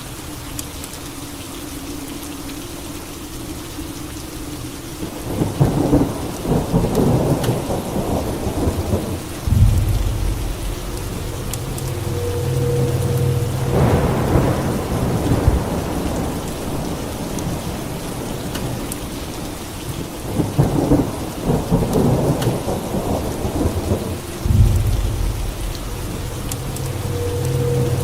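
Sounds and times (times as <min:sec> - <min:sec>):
steady rain: 0:00.0 - 0:28.0
rolling thunder: 0:05.3 - 0:19.2, 0:20.3 - 0:28.0
low steady hum: 0:09.3 - 0:16.7, 0:24.2 - 0:28.0.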